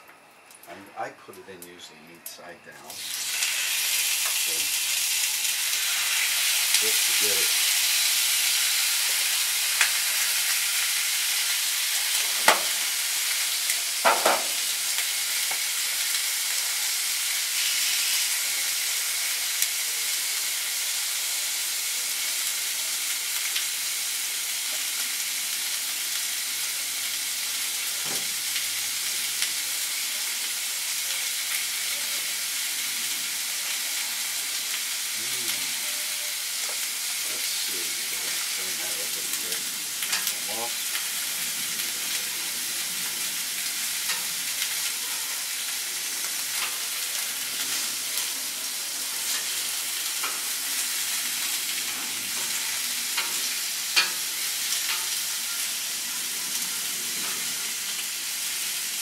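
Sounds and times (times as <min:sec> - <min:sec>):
chicken sizzling on grill: 0:00.0 - 0:59.0.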